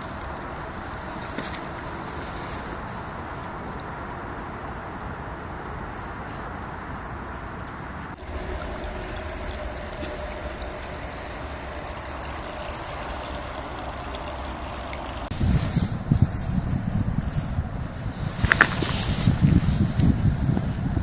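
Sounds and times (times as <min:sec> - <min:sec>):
wind buffeting microphone: 0:08.0 - 0:21.0
stream water rushing: 0:08.2 - 0:15.3.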